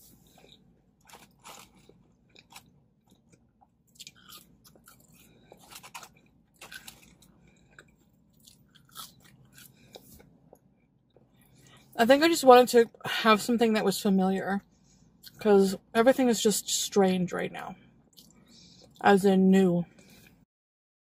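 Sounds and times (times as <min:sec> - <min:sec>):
person chewing food: 0:00.0 - 0:12.0, 0:18.1 - 0:19.0
faint crunches: 0:00.3 - 0:10.3.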